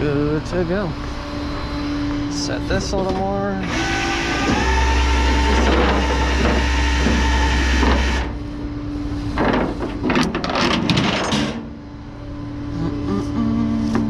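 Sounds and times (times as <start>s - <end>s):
tow truck engine and hydraulics: 0.0s - 14.0s
truck idling: 0.0s - 14.0s
metal clanks and rattles: 5.5s - 8.3s, 9.3s - 11.8s.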